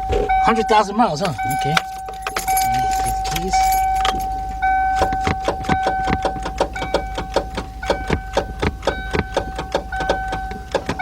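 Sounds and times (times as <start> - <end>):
steady electronic warning tone: 0.0 - 10.7
starter solenoid clicking rapidly: 5.0 - 11.0.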